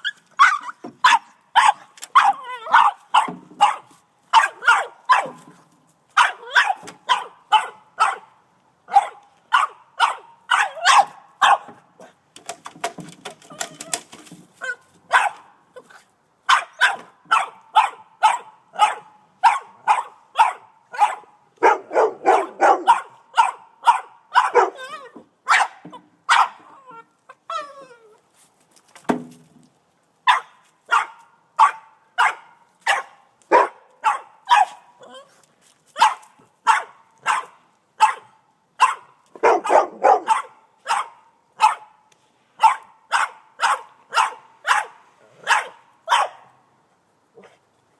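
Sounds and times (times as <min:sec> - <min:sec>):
dog barking sharply: 0:00.4 - 0:05.4, 0:08.9 - 0:11.7, 0:15.1 - 0:15.4, 0:16.5 - 0:24.8, 0:25.5 - 0:26.6, 0:30.3 - 0:34.8, 0:36.0 - 0:41.9, 0:42.6 - 0:46.4.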